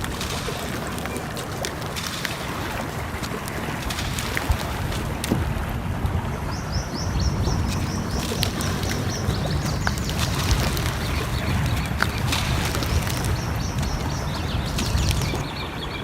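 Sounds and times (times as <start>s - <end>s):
bird chirping: 6.3s - 16.0s
wood fire crackling and popping: 8.0s - 15.4s.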